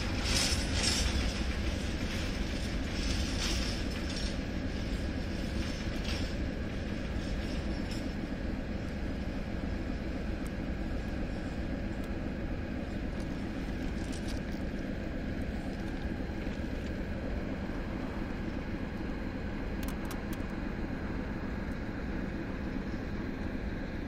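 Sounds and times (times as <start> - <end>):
freight train rumble: 0.0 - 24.0
faint clicks: 19.8 - 20.5.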